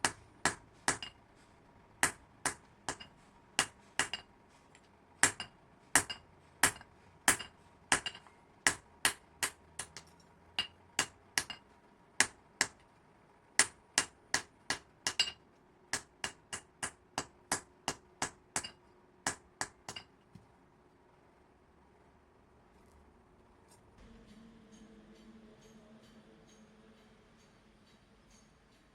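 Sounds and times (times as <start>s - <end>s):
hammer striking metal: 0.0s - 1.2s, 2.0s - 4.3s, 5.2s - 11.6s, 13.6s - 20.1s, 24.0s - 28.9s.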